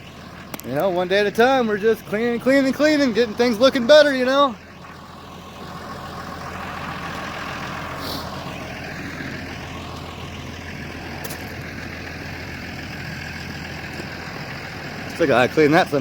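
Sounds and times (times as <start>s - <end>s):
heavy vehicle engine idling: 0.0s - 16.0s
short hiss: 8.0s - 8.4s.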